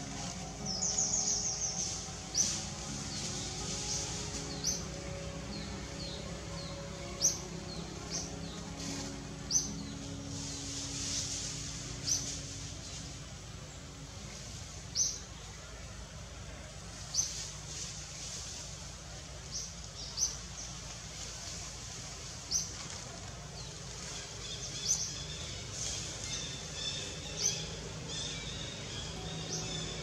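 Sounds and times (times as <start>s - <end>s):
birds chirping: 0.0s - 15.7s, 22.2s - 30.0s
outdoor background hiss: 0.0s - 30.0s.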